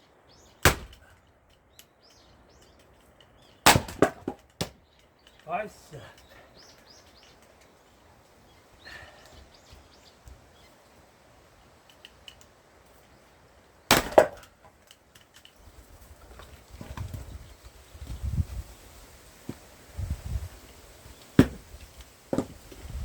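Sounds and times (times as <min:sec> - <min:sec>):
axe splitting wood: 0:00.6 - 0:01.1, 0:03.6 - 0:04.8, 0:13.9 - 0:14.6, 0:21.4 - 0:21.7, 0:22.3 - 0:22.6.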